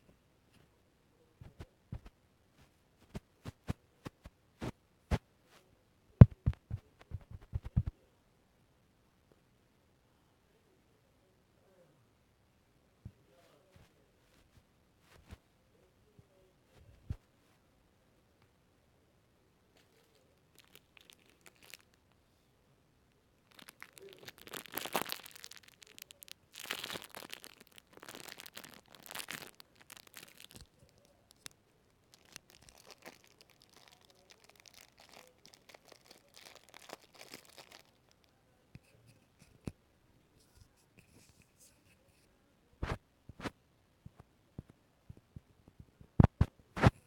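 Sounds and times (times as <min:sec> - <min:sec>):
crackly rustling and crinkles: 0:01.4 - 0:08.0, 0:13.1 - 0:15.5, 0:19.7 - 0:22.4, 0:23.1 - 0:39.8, 0:40.4 - 0:47.0.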